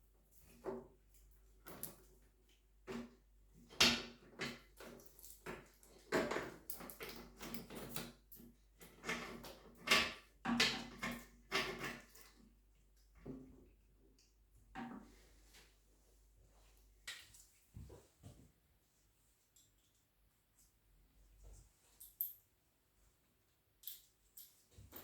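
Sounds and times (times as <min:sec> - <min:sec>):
tools clinking and knocking: 0:23.8 - 0:25.0.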